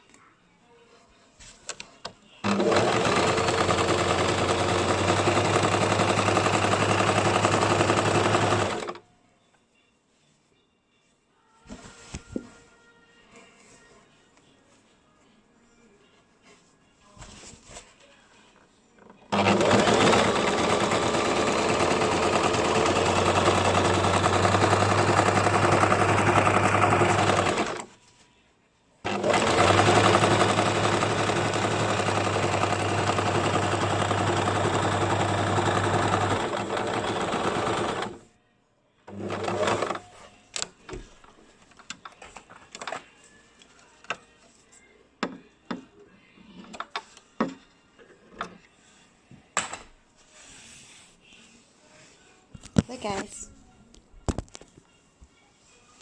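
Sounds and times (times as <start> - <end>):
sewing machine stitching: 2.4 - 9.0, 19.3 - 27.9, 29.0 - 38.3, 39.1 - 40.1.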